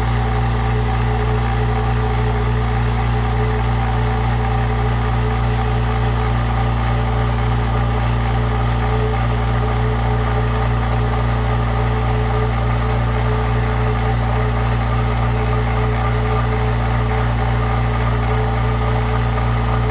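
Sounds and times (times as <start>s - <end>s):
air compressor running: 0.0s - 19.9s.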